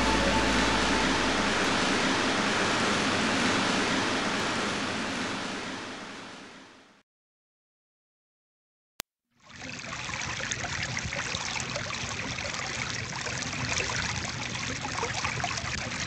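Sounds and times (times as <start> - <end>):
held music note: 0.0 - 3.1
ocean waves washing: 0.0 - 6.4.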